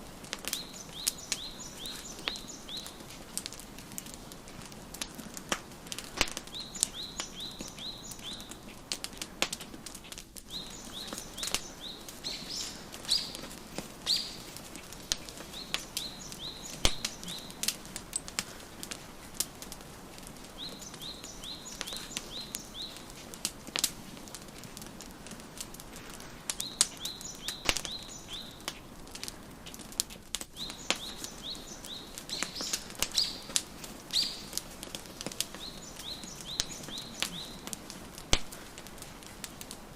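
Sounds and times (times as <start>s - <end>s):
wood fire crackling and popping: 0.0s - 39.9s
songbird chirping: 0.4s - 4.4s, 5.5s - 8.9s, 9.9s - 18.4s, 19.1s - 23.2s, 26.5s - 29.0s, 30.5s - 39.5s.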